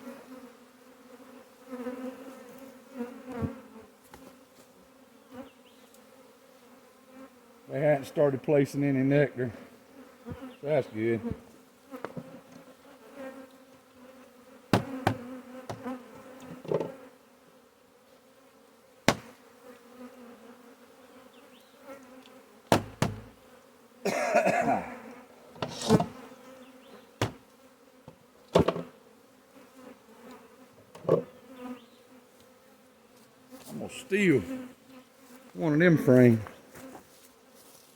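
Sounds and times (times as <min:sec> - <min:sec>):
bee swarm humming: 0:00.0 - 0:37.9
knocks on wooden hive box: 0:14.7 - 0:15.9, 0:16.6 - 0:17.0, 0:19.1 - 0:19.4, 0:22.7 - 0:23.4, 0:27.2 - 0:27.4, 0:28.1 - 0:28.9
wooden hive creaking: 0:14.7 - 0:17.1, 0:22.1 - 0:23.4, 0:25.5 - 0:27.5, 0:28.2 - 0:29.0.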